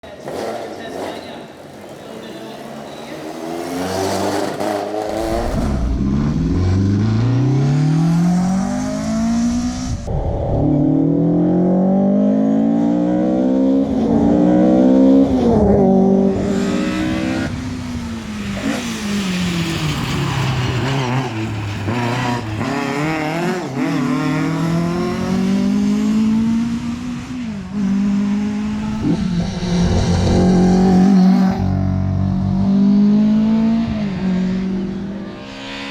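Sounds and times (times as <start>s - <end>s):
rally car engine at full throttle: 0.0s - 35.9s.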